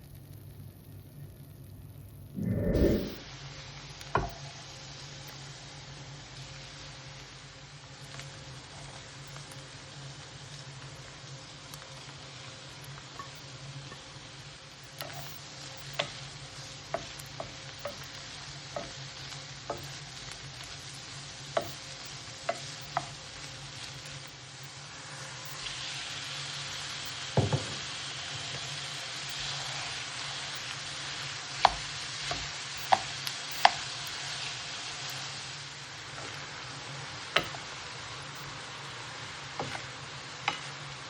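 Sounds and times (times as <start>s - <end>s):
food sizzling in a pan: 0.0s - 41.0s
low hum: 2.3s - 3.2s.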